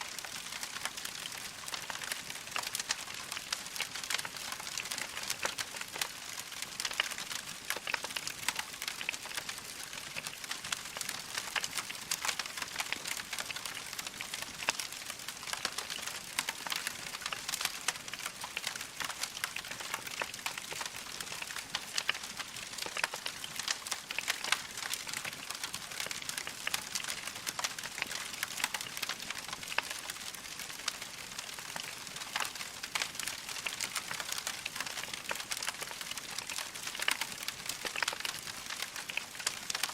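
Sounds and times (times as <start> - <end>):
burning logs crackling: 0.1 - 39.9.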